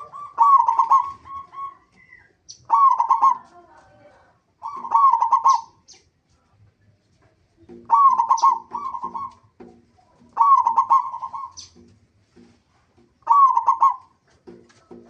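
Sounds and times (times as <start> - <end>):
dove cooing: 0.0 - 5.8, 7.7 - 11.9, 13.2 - 15.0.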